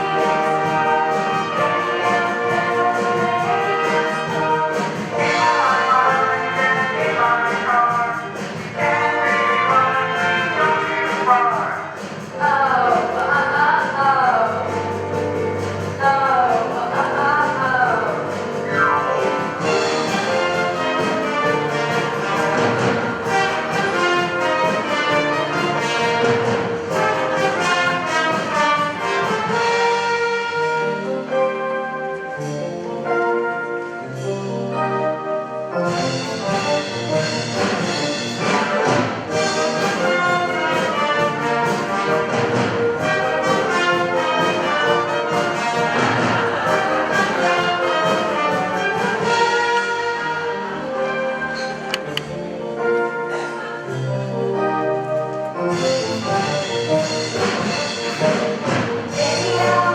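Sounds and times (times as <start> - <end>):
steady drum beat: 0.0 - 30.7, 35.9 - 50.2, 55.7 - 59.9
instrumental brass music: 0.0 - 59.9.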